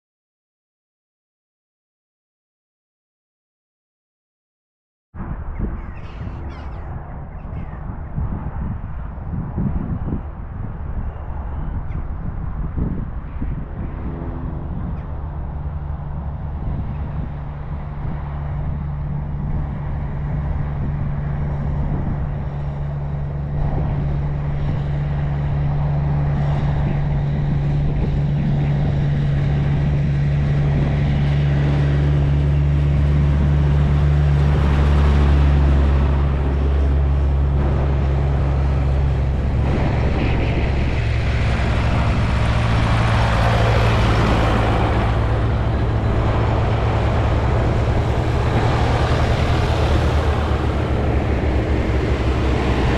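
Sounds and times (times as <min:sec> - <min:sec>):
tractor engine droning: 0:12.8 - 0:52.9
rushing noise: 0:29.3 - 0:52.9.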